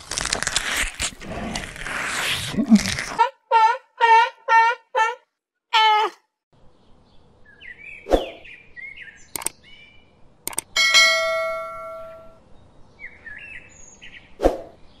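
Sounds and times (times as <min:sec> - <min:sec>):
small birds chirping: 0:06.6 - 0:10.8, 0:12.4 - 0:15.0
quick clicks: 0:09.3 - 0:09.6, 0:10.4 - 0:10.8
bell-like ding: 0:10.8 - 0:12.4.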